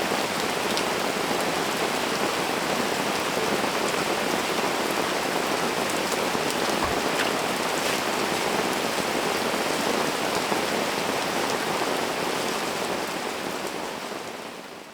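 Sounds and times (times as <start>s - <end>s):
steady rain falling: 0.0s - 14.9s.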